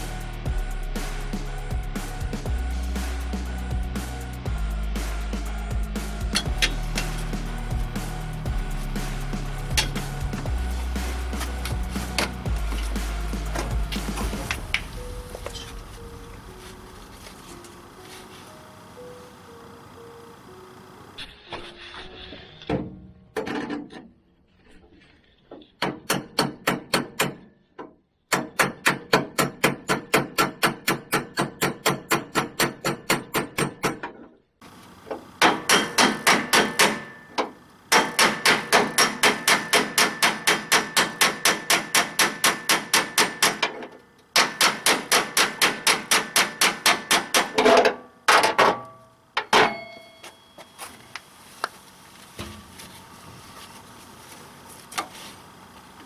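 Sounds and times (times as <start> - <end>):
rapid hammer strikes: 5.0 - 14.9, 25.8 - 27.5, 28.3 - 34.1, 35.4 - 48.8.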